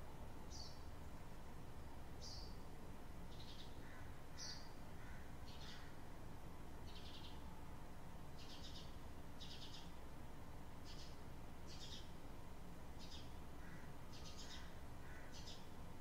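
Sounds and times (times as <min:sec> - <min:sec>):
small birds chirping: 0:00.0 - 0:01.2, 0:02.1 - 0:06.0, 0:06.8 - 0:07.5, 0:08.2 - 0:10.0, 0:10.7 - 0:12.2, 0:12.9 - 0:16.0
faint low background noise: 0:00.0 - 0:16.0.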